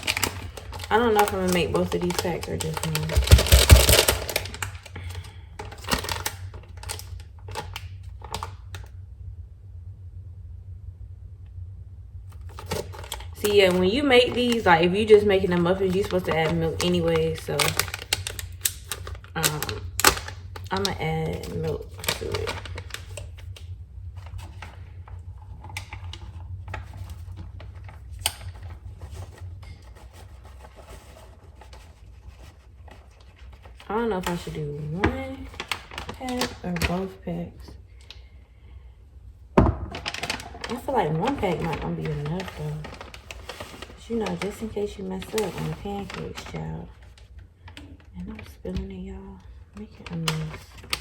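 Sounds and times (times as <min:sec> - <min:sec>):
packets and utensils clicking: 0:00.0 - 0:08.6, 0:15.5 - 0:23.6
low steady hum: 0:00.0 - 0:51.0.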